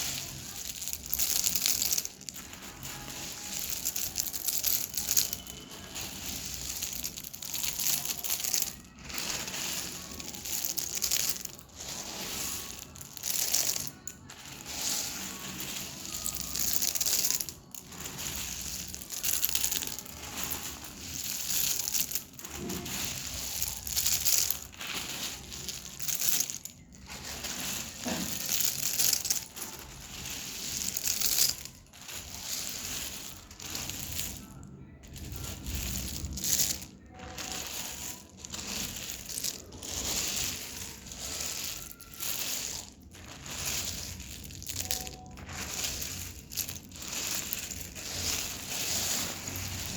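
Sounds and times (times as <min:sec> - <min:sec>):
dry clay crunching and crumbling: 0:00.0 - 0:49.9.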